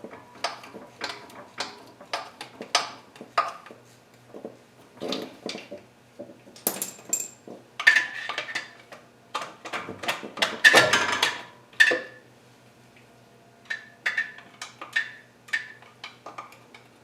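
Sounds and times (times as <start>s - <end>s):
metal tools clinking on metal: 6.7s - 7.4s.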